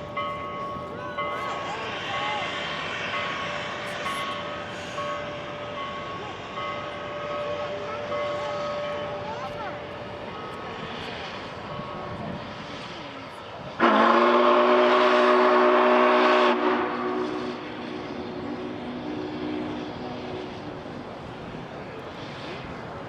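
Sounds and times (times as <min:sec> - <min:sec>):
steam locomotive whistle chord: 0:13.8 - 0:20.6.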